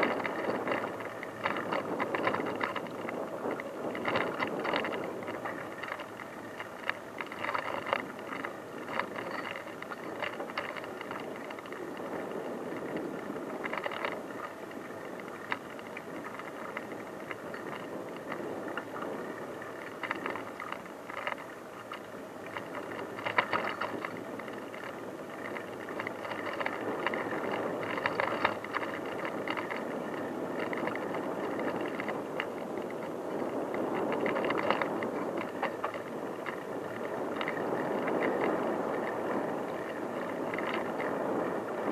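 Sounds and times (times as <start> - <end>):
bicycle tyres rolling: 0.0 - 41.9
bike rattling and clicking: 0.0 - 41.9.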